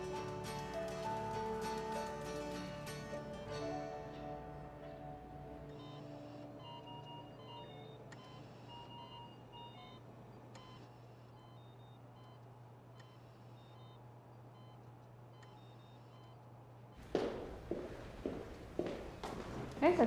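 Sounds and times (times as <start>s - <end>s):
steady low hum: 17.0s - 20.0s.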